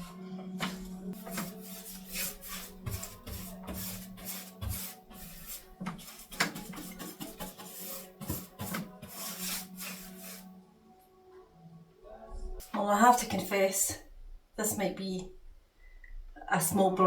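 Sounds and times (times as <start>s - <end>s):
paintbrush swishing: 0.0s - 10.5s.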